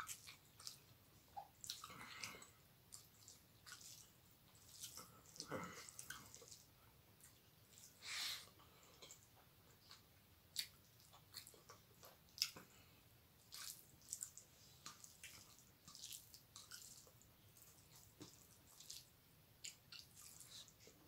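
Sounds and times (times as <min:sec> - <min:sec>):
fingers squishing food on plate: 0:00.0 - 0:08.0
wet chewing and lip smacking: 0:00.0 - 0:21.0.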